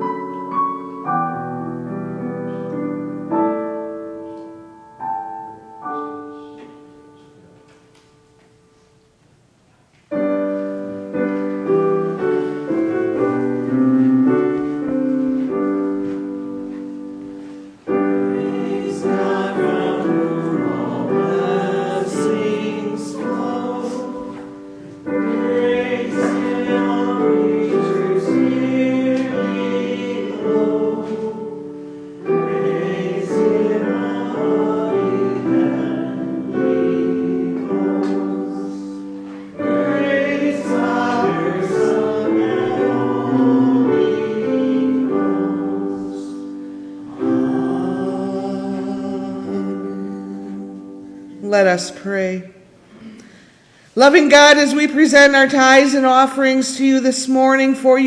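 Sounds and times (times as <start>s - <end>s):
piano accompaniment: 0.0s - 52.4s
choir singing: 10.2s - 51.4s.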